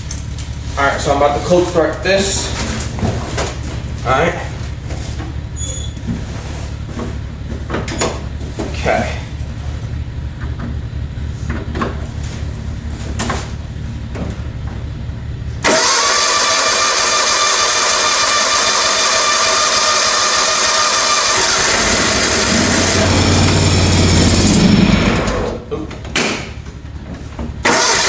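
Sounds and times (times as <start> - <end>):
mower engine running: 15.4 - 25.7, 27.6 - 28.0
mower engine cranking: 15.6 - 25.7, 27.6 - 28.0.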